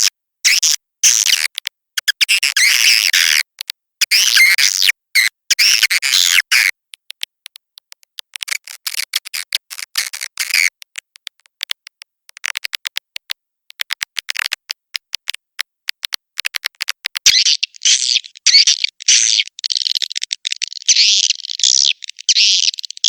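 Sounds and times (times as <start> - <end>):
twittering chirps: 17.3 - 23.0.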